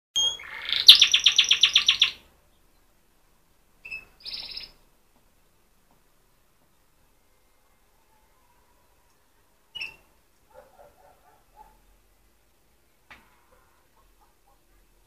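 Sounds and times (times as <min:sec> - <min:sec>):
canary chirping and trilling: 0:00.2 - 0:02.2, 0:03.8 - 0:04.8, 0:09.7 - 0:11.7.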